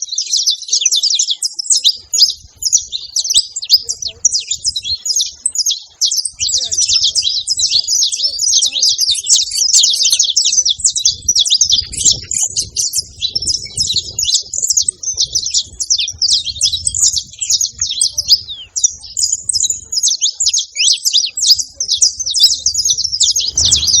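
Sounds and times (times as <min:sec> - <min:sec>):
finch singing high chirps: 0:00.0 - 0:24.0
faint low rumble: 0:23.2 - 0:24.0.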